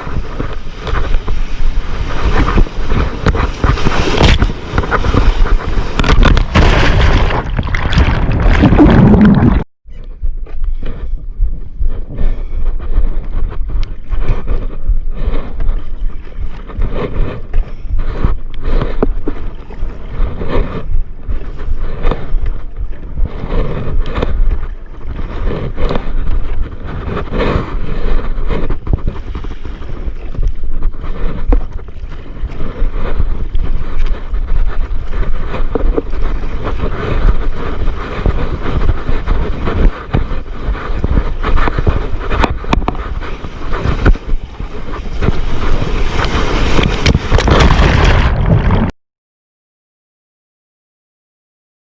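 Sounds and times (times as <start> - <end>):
surf and water splashing: 0.0 - 9.6, 26.9 - 48.9
wind buffeting microphone: 0.0 - 48.9.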